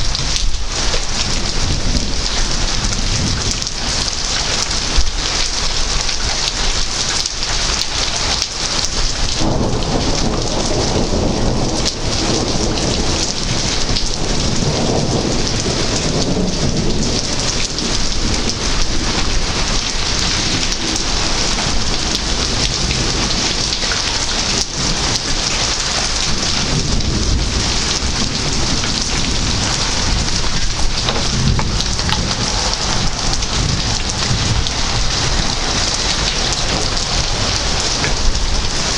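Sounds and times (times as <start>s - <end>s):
heavy rain falling: 0.0s - 38.9s
thunder rumbling: 0.0s - 38.9s.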